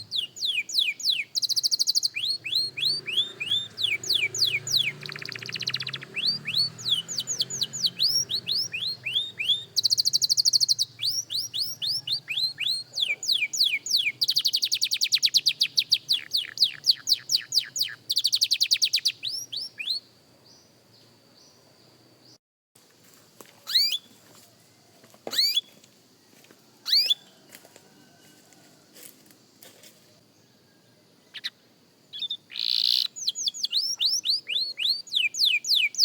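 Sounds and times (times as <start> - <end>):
canary singing with trills: 0.0 - 20.7, 23.7 - 24.2, 25.3 - 25.8, 26.8 - 27.4, 31.2 - 36.0.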